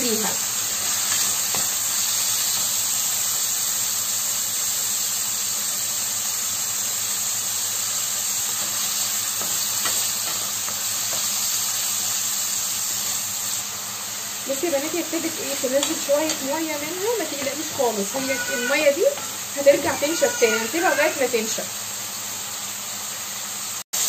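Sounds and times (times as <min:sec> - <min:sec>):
liver sizzling in hot oil: 0:00.0 - 0:24.0
wooden spatula scraping: 0:15.6 - 0:20.8.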